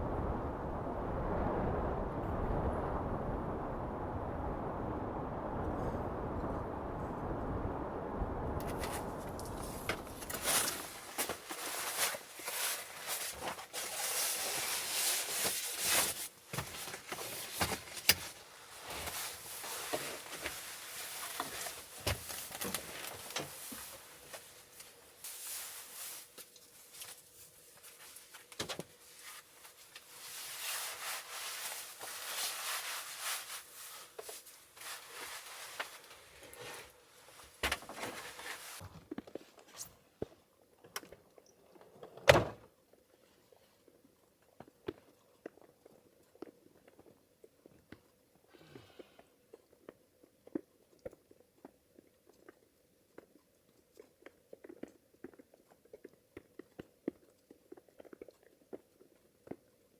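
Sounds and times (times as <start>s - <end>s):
rustling and rubbing: 8.7s - 39.8s.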